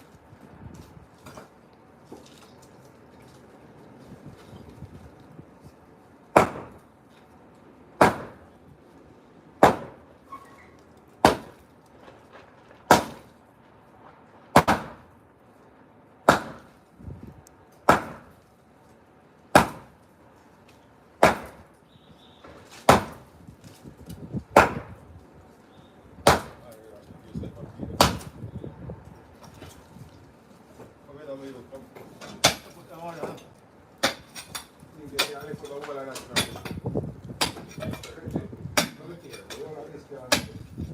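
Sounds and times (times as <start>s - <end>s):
sledgehammer striking concrete: 6.3s - 6.9s, 8.0s - 8.5s, 9.6s - 10.0s, 11.2s - 11.7s, 12.9s - 13.3s, 14.5s - 15.1s, 16.3s - 16.8s, 17.8s - 18.4s, 19.5s - 20.0s, 21.2s - 21.7s, 22.7s - 23.3s, 24.5s - 25.0s, 26.2s - 26.6s, 27.9s - 28.4s, 32.3s - 33.4s, 34.0s - 35.4s, 36.3s - 38.2s, 38.8s - 39.6s, 40.2s - 40.9s.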